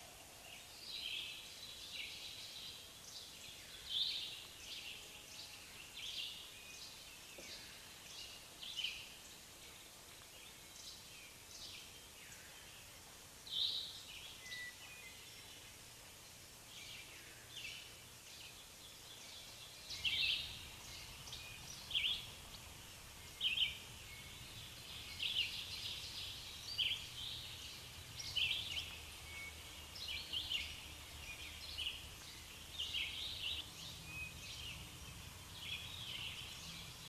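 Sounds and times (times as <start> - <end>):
bird calls: 16.8 - 37.0.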